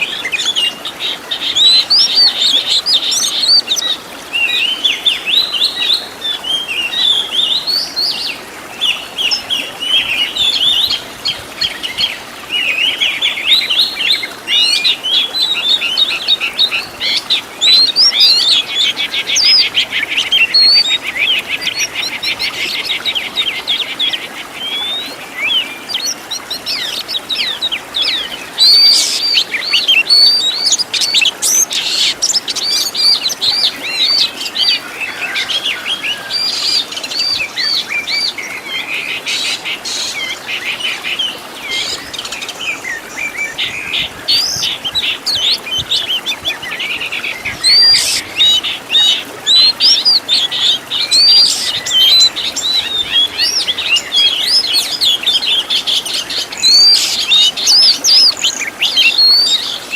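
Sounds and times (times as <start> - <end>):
songbird singing: 0.0 - 59.9.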